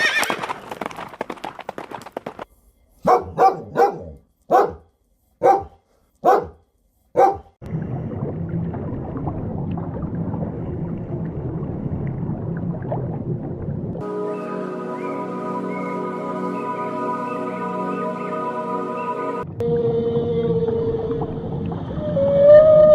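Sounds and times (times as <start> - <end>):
dog barking: 3.0 - 7.6
steady low rumble: 7.6 - 14.0.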